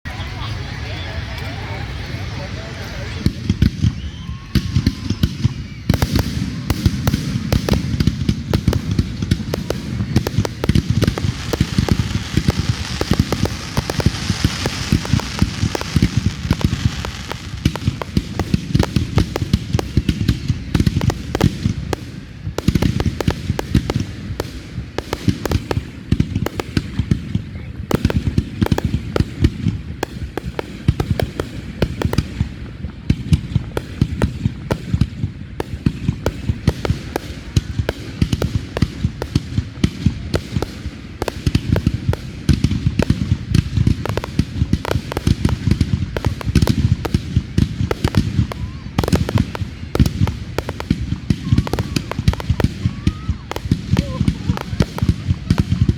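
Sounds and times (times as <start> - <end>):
fireworks crackling bangs: 0.4 - 55.9
hissing rush: 9.7 - 20.0.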